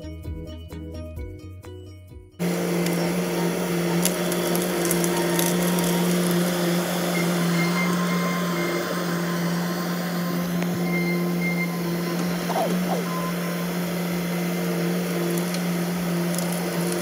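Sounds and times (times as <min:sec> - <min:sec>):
diesel engine running: 0:02.4 - 0:17.0
wood cracking: 0:03.9 - 0:06.4, 0:15.2 - 0:17.0.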